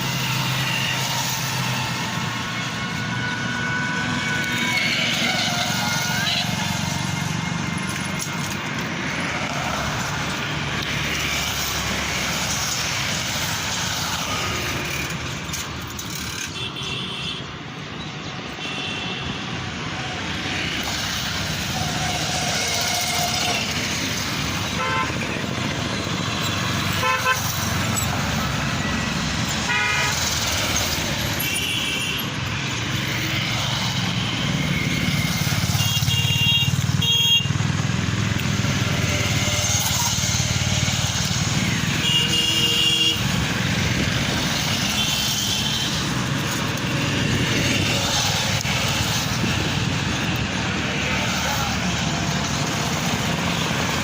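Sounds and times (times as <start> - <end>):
road traffic: 0.0 - 54.0
vehicle horns honking: 16.4 - 17.5, 18.6 - 19.5, 24.7 - 25.4, 26.9 - 28.1, 28.8 - 30.8, 31.4 - 32.4, 35.6 - 37.6, 41.9 - 43.5.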